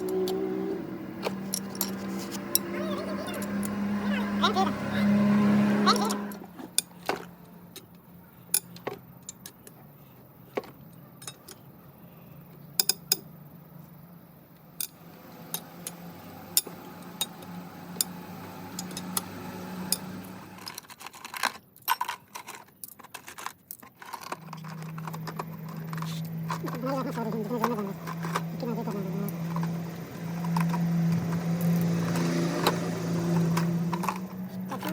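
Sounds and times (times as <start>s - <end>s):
metallic clicks of engine parts: 1.2s - 2.7s, 6.0s - 9.8s, 10.6s - 11.7s, 12.5s - 13.3s, 14.5s - 34.9s.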